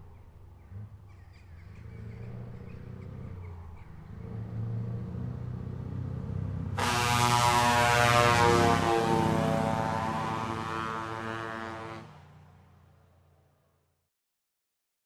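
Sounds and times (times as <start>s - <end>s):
loud air horn: 6.8s - 12.3s.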